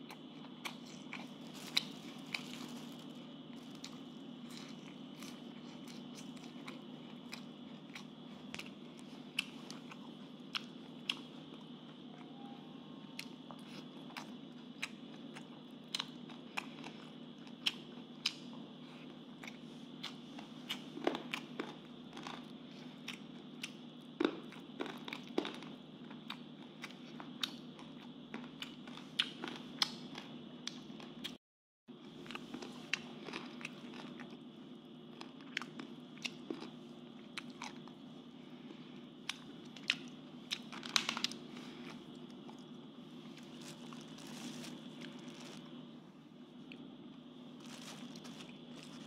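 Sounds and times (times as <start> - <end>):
person chewing food: 0.0 - 12.0, 13.1 - 31.4, 32.0 - 45.9, 46.6 - 49.0
steady hum: 0.0 - 49.0
wet clicks and crunches: 39.2 - 41.4.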